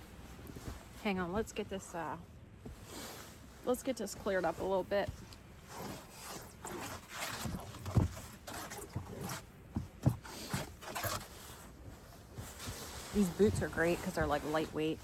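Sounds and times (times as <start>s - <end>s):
snow being brushed and scraped: 2.8s - 9.5s, 10.2s - 15.0s.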